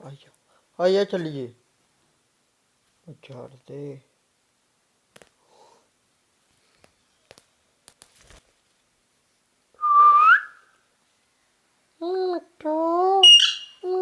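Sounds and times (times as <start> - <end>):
parakeet whistle: 9.8 - 10.6, 13.2 - 13.8.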